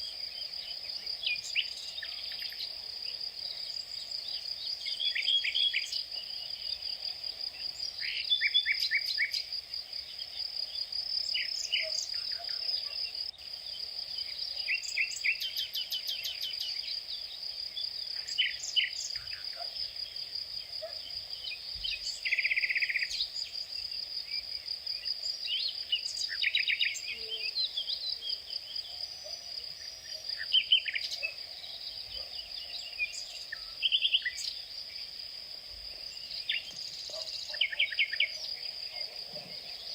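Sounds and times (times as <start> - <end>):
insect drone: 0.0 - 39.9
birds chirping and trilling: 36.0 - 39.9.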